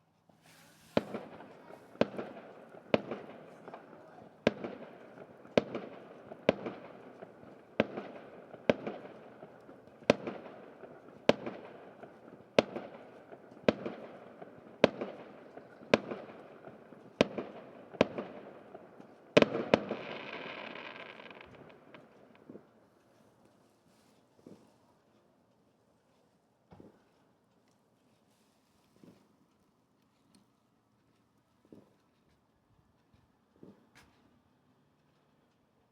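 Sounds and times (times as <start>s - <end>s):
fireworks crackling: 0.4s - 22.8s
fireworks bangs echoing: 0.9s - 22.7s.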